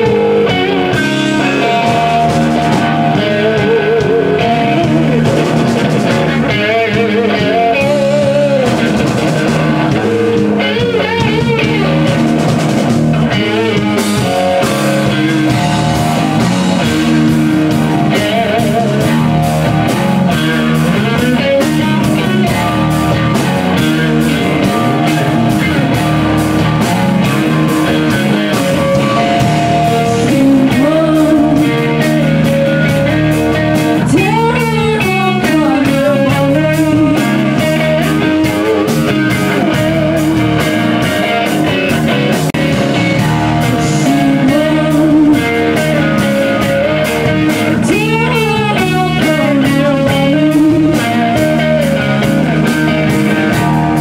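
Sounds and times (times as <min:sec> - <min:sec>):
steady drum hits: 0:00.0 - 0:06.8, 0:08.2 - 0:34.2
electric guitar wailing: 0:00.0 - 0:54.0.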